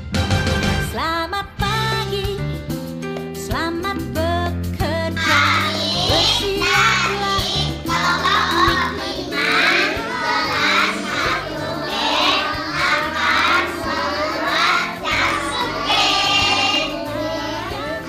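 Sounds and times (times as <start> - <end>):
backing track music: 0.0 - 18.0
child singing: 5.1 - 18.0.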